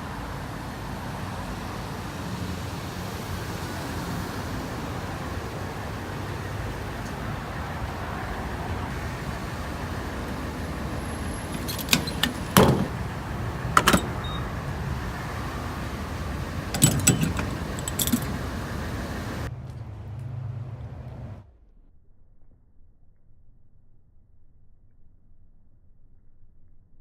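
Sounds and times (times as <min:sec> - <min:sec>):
vehicle rumble from inside: 0:00.0 - 0:21.7
sharp clicks and jangling rattles: 0:11.2 - 0:14.4, 0:16.6 - 0:18.8.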